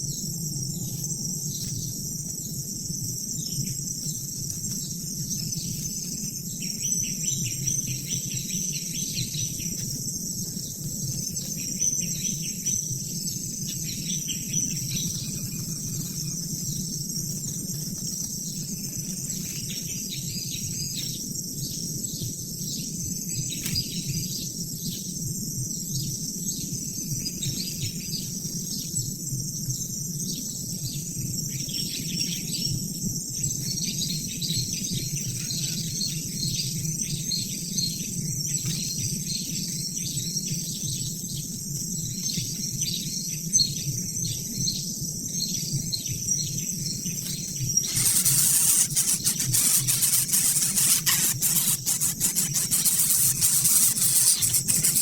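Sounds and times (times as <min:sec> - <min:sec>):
insects trilling: 0:00.0 - 0:21.3, 0:47.2 - 0:55.0.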